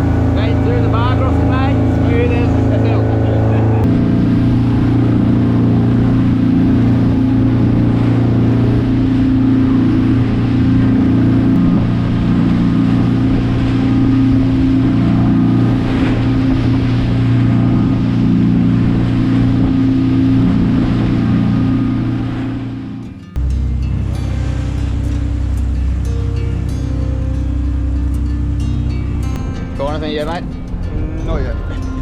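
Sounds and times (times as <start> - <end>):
motorboat engine humming: 0.0 - 32.0.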